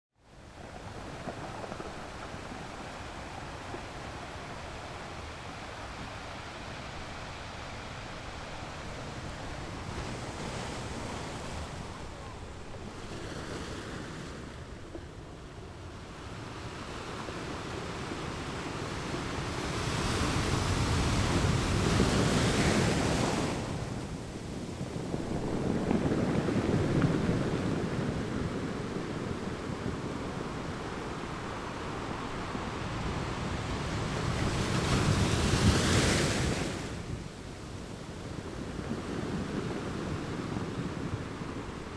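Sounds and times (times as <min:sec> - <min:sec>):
wind rumbling on microphone: 0:00.2 - 0:41.9
ocean surf breaking: 0:17.7 - 0:41.9.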